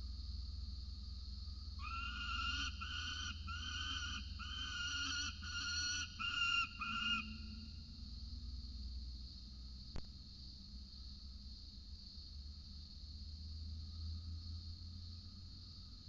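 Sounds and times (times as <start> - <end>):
falcon wailing calls: 1.8 - 7.5.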